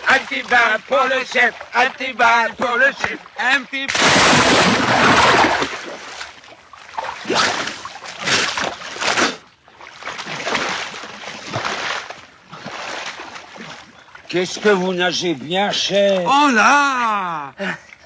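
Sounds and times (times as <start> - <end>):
swimming stroke splashes: 0.0 - 16.3
person plunging into water: 2.6 - 14.3.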